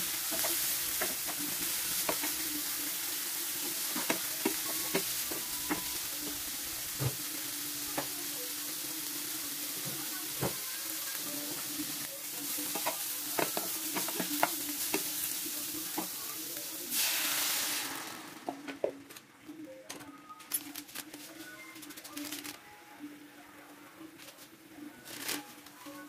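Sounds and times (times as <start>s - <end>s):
water hissing in hot pan: 0.0s - 18.5s
vegetables sizzling in oil: 0.0s - 18.6s.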